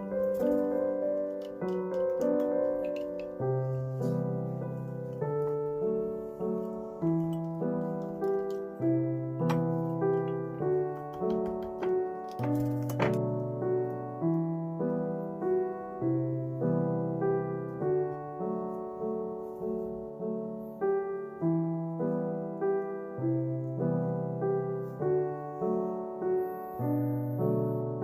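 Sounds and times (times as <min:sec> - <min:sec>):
gentle piano music: 0:00.0 - 0:28.0.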